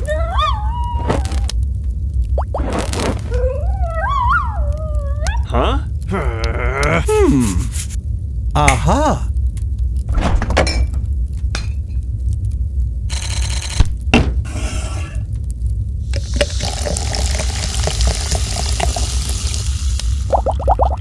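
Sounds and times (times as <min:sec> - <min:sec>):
low hum: 0:00.0 - 0:21.0
long hiss: 0:16.0 - 0:20.6.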